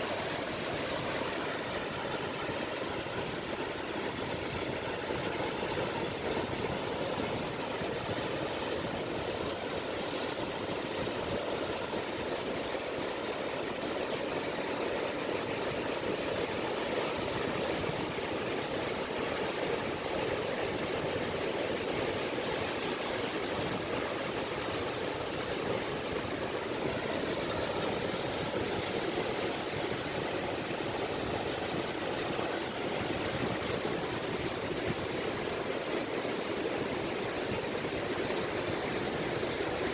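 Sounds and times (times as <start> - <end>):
gentle waves lapping on beach: 0.0 - 39.9.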